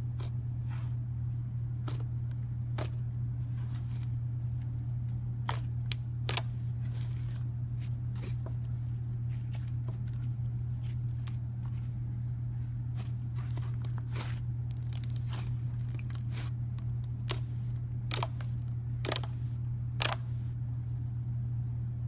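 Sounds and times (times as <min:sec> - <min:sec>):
steady low hum: 0:00.0 - 0:22.0
slime clicking and popping: 0:17.2 - 0:19.3, 0:20.0 - 0:20.3.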